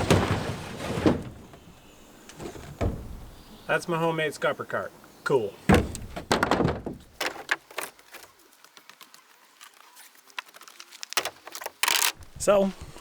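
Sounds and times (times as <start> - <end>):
sharp knocks and clatter: 0.0 - 1.6, 5.7 - 7.6.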